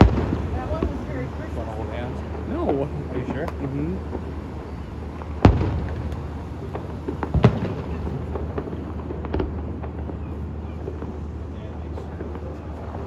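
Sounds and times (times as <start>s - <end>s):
fireworks shells bursting: 0.0s - 10.2s
steady low rumble: 0.0s - 13.0s.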